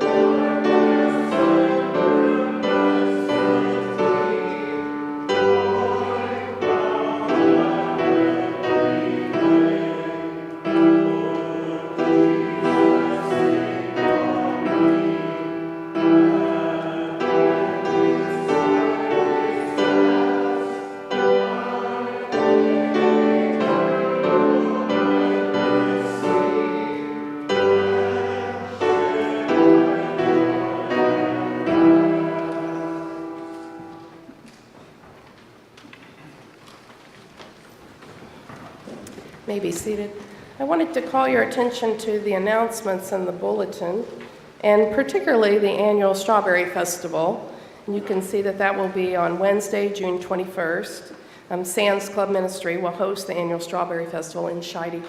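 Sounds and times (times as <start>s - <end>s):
congregation and choir singing a hymn: 0.0s - 34.4s
keyboard accompaniment: 0.0s - 34.5s.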